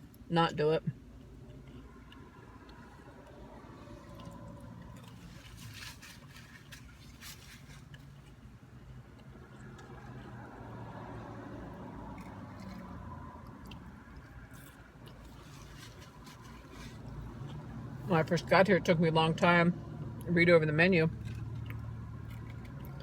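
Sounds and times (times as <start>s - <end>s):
person chewing: 1.2s - 10.6s, 12.0s - 17.7s, 21.2s - 23.0s
food packaging clicks and scrapes: 4.9s - 8.5s, 14.5s - 17.6s.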